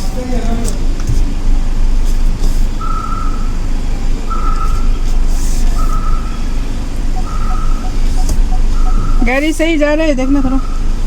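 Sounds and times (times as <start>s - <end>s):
vehicle reversing beeper: 7.1s - 9.6s.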